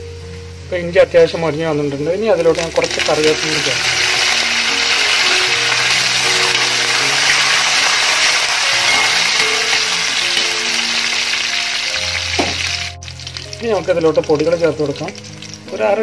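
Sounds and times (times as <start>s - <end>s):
leaves sizzling in hot oil: 0.0s - 16.0s.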